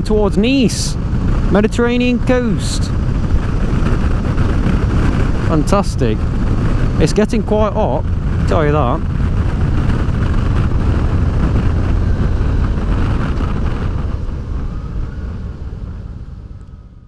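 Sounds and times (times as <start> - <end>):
motorcycle engine: 0.0 - 17.0
wind rush: 0.0 - 17.0.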